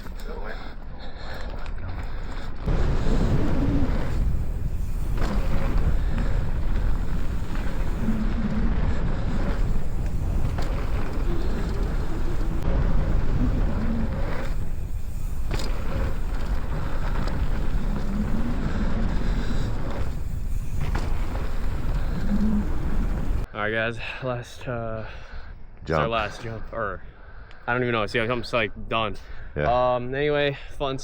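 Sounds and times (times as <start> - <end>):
bike rolling on dirt trail: 0.0 - 23.5
wind rushing over microphone: 2.6 - 23.5.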